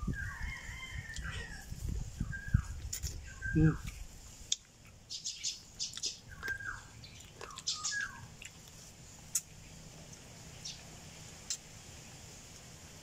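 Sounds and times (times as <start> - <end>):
high bird chirps: 5.1 - 8.3.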